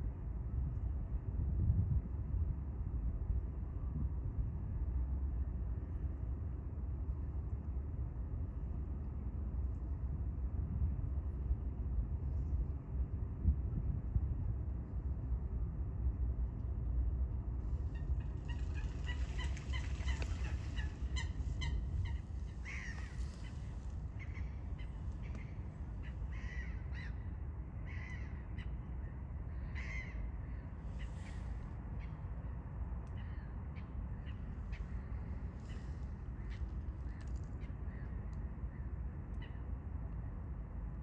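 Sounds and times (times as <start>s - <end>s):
steady low rumble: 0.0s - 41.0s
harsh bird calls: 17.9s - 25.5s.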